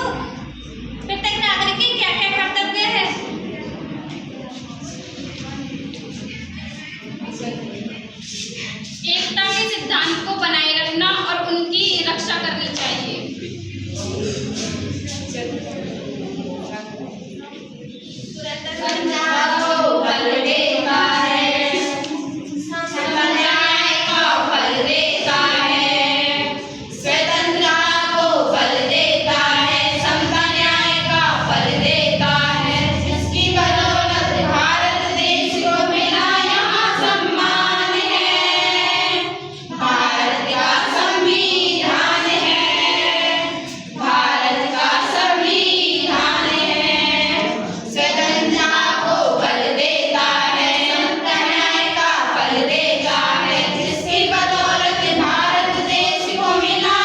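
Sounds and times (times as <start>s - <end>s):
children singing in chorus: 12.7s - 57.0s.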